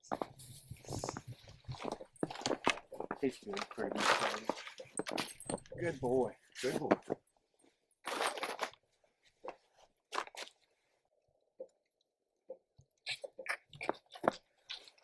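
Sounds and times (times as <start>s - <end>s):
calf slurping and gulping milk: 12.5s - 15.0s.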